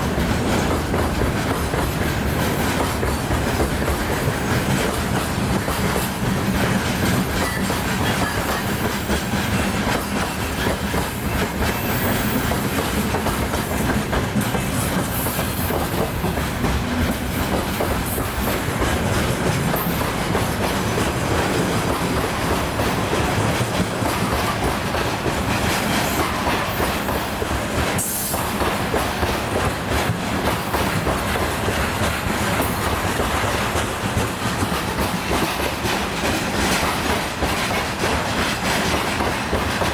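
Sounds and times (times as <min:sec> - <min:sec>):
freight train wagons rolling: 0:00.0 - 0:39.9
wheels clattering on rails: 0:00.0 - 0:39.9.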